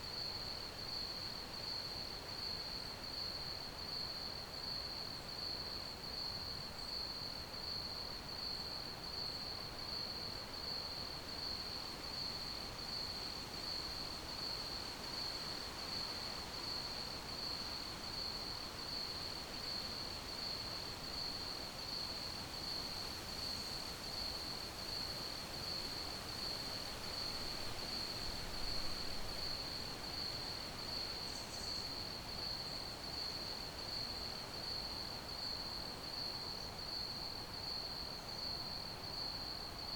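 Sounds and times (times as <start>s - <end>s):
crickets chirping: 20.4s - 39.9s.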